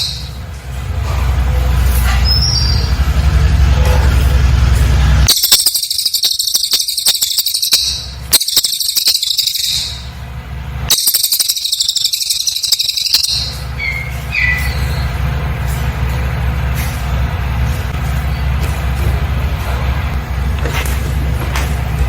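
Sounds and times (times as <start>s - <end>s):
bird rattling trills: 0.0s - 0.4s, 5.3s - 10.2s, 10.9s - 15.3s.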